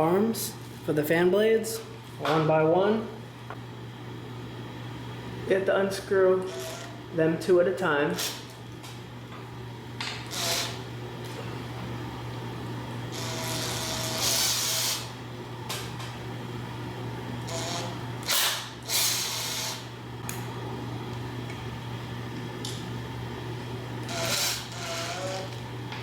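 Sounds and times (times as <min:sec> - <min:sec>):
cordless impact driver bursts: 0:13.2 - 0:15.1, 0:17.5 - 0:19.8, 0:24.0 - 0:25.5.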